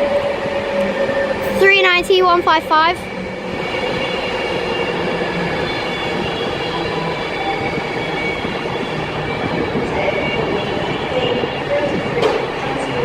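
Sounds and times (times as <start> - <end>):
rumble of train wheels on rail: 0.0 - 13.0
high squealing wheels and brakes: 3.1 - 13.0.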